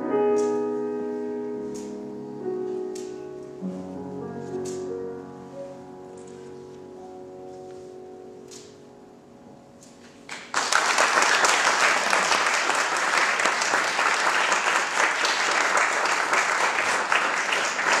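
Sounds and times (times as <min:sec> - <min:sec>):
audience applause: 0:10.3 - 0:18.0.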